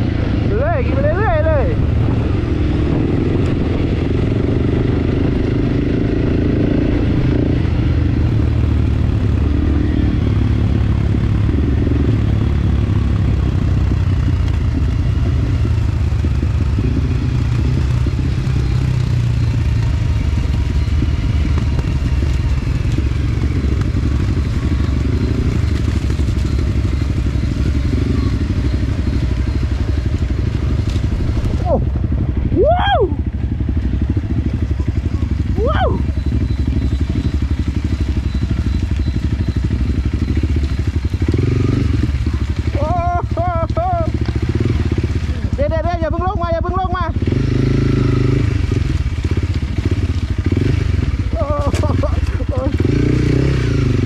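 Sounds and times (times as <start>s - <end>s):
dirt bike engine running: 0.0s - 54.0s
bike clattering over terrain: 51.3s - 52.8s.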